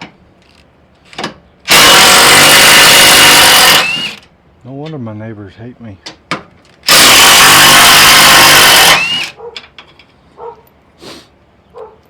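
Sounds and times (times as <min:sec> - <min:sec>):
loud power tool running: 0:01.7 - 0:04.2, 0:06.9 - 0:09.4.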